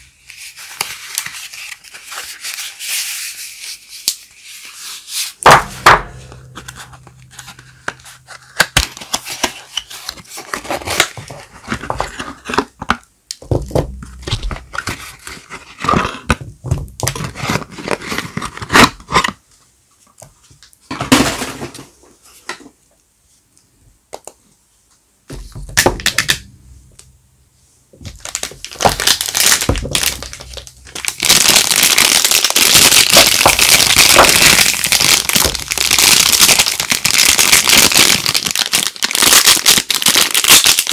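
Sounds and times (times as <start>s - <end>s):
wrappers crinkling: 28.1s - 40.9s.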